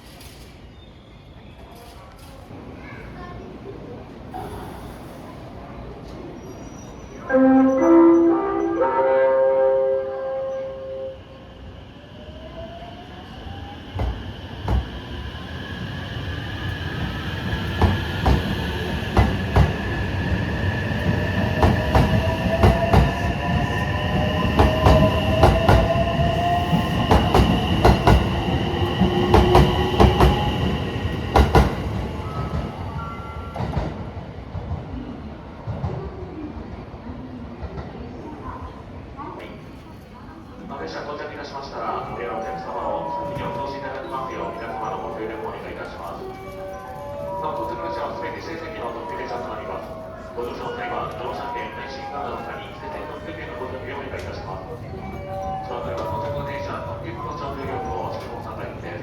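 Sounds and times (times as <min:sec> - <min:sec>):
train rumble: 0:11.8 - 0:36.2
station chime melody: 0:42.2 - 0:58.8.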